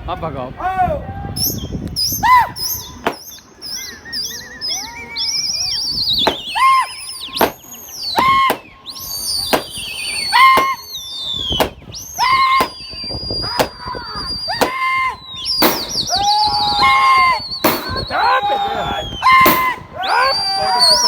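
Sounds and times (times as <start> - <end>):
shrill whistling: 1.4 - 21.0
sharp cracks: 6.3 - 6.6, 8.2 - 8.7, 9.5 - 9.8, 10.5 - 10.8, 11.6 - 11.8, 12.6 - 12.9, 13.6 - 13.9, 15.6 - 16.5, 17.6 - 18.2, 19.4 - 19.9.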